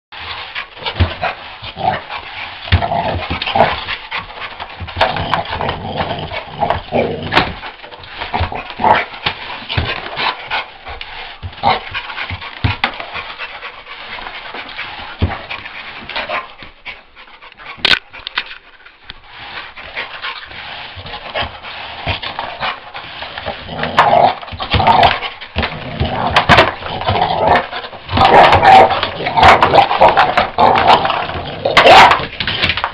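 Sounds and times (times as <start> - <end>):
dog panting: 9.6 - 18.4.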